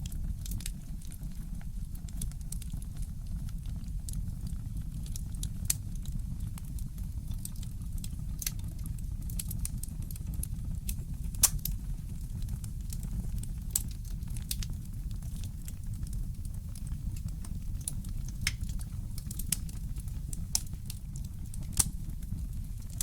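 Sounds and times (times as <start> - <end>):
fireplace crackling: 9.3 - 23.0.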